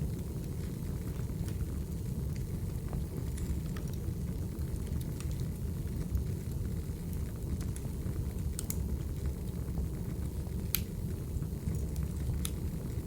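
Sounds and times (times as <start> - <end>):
wood fire crackling: 0.0 - 13.0
sharp pops of fire: 10.7 - 11.0.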